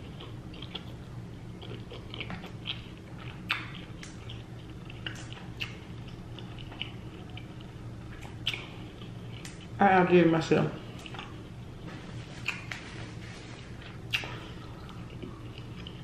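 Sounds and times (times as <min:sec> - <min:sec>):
person chewing food: 0:00.0 - 0:09.8, 0:10.8 - 0:16.0
low hum: 0:00.0 - 0:16.0
wet mouth smacks and clicks: 0:03.4 - 0:04.2, 0:12.4 - 0:12.8, 0:14.1 - 0:14.4.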